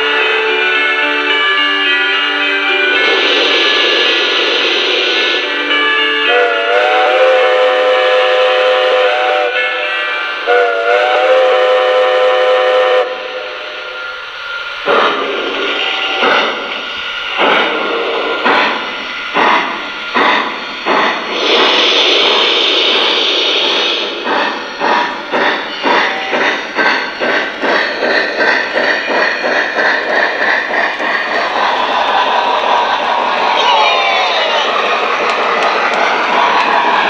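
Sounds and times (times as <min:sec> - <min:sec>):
steam chuffs with hiss: 0:01.2 - 0:37.0
steam whistle: 0:03.0 - 0:16.9.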